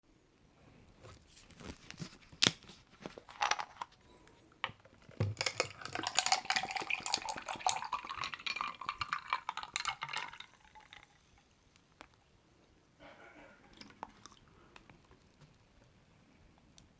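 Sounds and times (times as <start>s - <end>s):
tea pouring into a glass: 5.2s - 11.6s
glass and tableware clinking: 5.3s - 11.0s.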